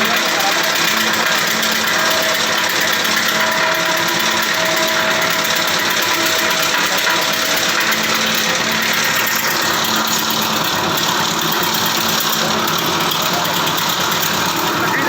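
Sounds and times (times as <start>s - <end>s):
wood chipper running: 0.0s - 15.0s.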